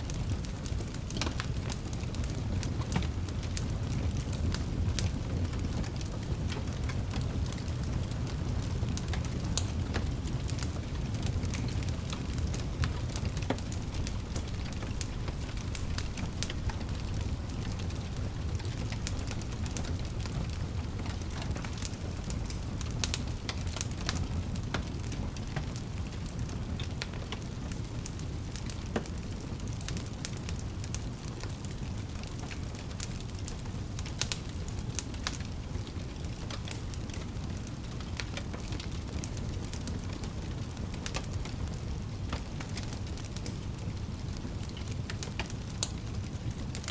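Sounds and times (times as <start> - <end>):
fire popping and snapping: 0.0 - 46.9
fire rumbling: 0.0 - 46.9.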